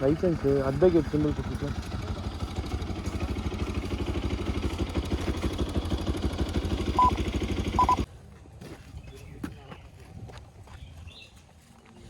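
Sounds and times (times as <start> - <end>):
motorcycle engine idling: 0.0 - 8.1
short high beeps: 7.0 - 7.2, 7.8 - 8.0.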